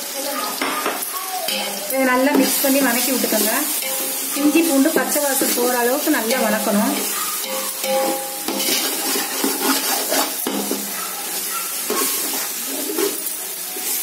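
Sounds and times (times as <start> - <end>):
paste and onions sizzling in oil: 0.0 - 14.0
metal ladle scraping a pot: 7.0 - 11.0.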